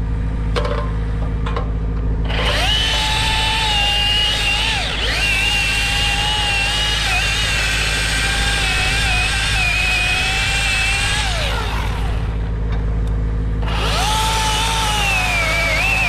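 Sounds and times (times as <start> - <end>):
low engine drone: 0.0 - 16.0
chainsaw revving: 2.3 - 12.5, 13.6 - 16.0.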